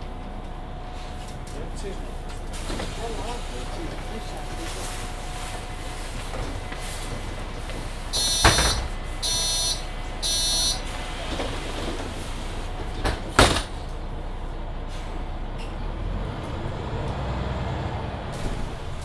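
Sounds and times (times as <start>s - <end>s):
bus low hum: 0.0s - 19.0s
bus doors shutting thump: 2.3s - 4.1s, 5.5s - 14.2s, 14.9s - 19.0s
bus door warning beeps: 8.0s - 12.1s.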